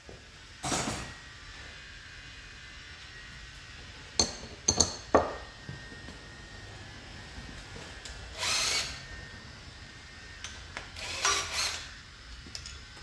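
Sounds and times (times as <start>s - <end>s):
metal tools clinking: 12.3s - 13.0s.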